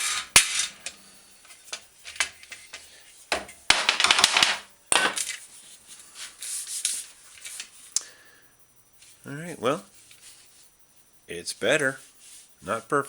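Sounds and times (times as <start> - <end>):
wood scraping on metal: 0.0 - 1.0.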